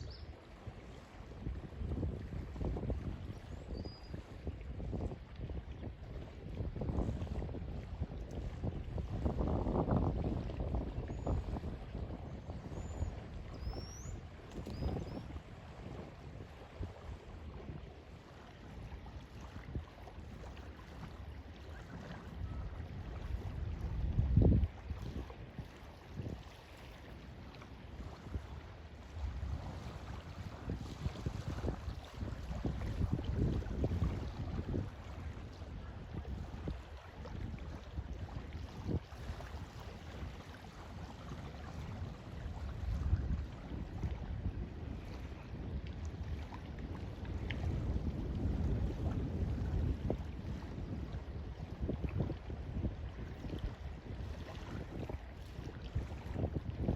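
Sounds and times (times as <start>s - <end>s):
wind rumble on microphone: 0.0s - 56.9s
small waves lapping: 4.0s - 56.8s.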